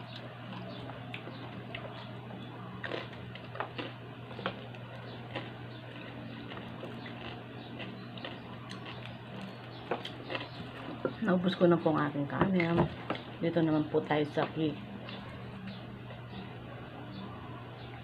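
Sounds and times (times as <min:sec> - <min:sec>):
person chewing rice: 0:00.0 - 0:11.1
steady low hum: 0:00.0 - 0:18.0.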